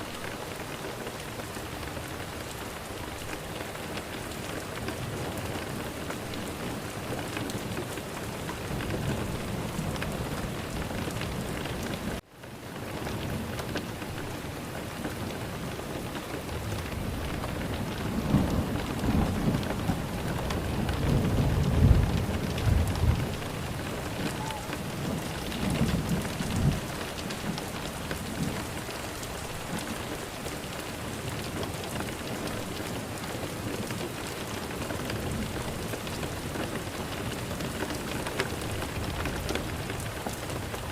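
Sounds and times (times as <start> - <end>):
heavy rain: 0.0 - 40.9
thunder rumbling: 16.4 - 30.3.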